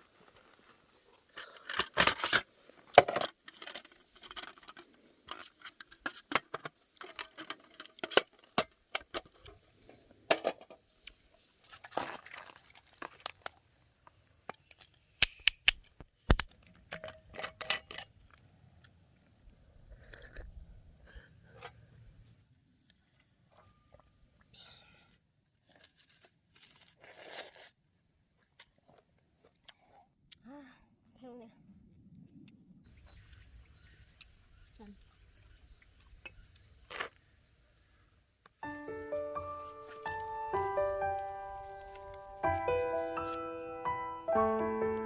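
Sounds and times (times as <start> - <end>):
handling noise rustling and crinkling: 0.0 - 10.8, 11.5 - 15.1, 25.6 - 27.8.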